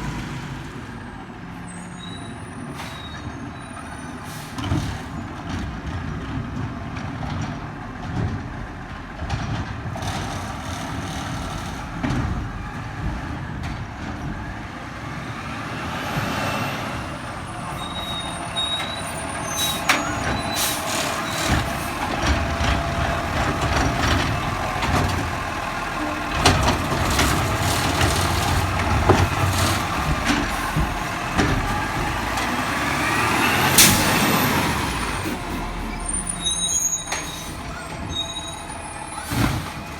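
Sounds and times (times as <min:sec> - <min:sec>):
diesel engine under load: 0:00.0 - 0:39.9
metal knocks and clanks: 0:17.6 - 0:32.9.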